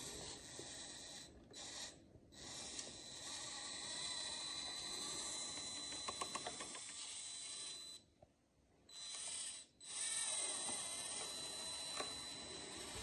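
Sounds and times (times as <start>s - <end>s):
electric motor whining: 9.1s - 13.0s.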